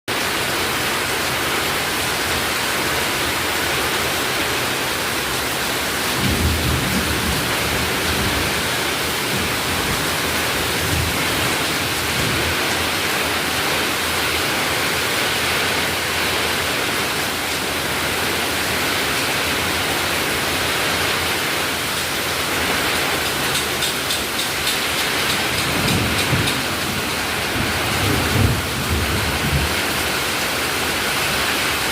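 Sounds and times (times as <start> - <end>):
strong wind rushing through foliage: 0.1 - 31.9
wind gusts buffeting microphone: 6.0 - 14.1, 22.6 - 30.0.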